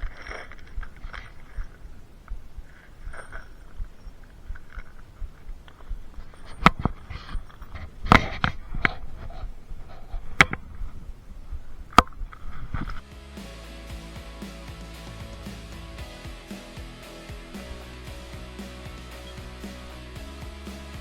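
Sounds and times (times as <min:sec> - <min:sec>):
faint background noise: 0:00.0 - 0:21.0
music: 0:13.0 - 0:21.0.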